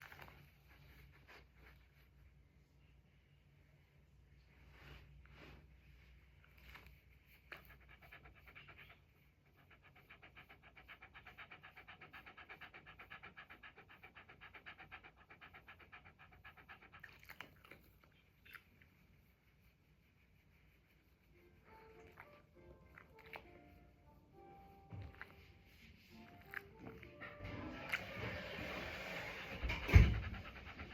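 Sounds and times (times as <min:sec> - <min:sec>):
dog panting: 0:06.6 - 0:19.7, 0:20.4 - 0:30.9.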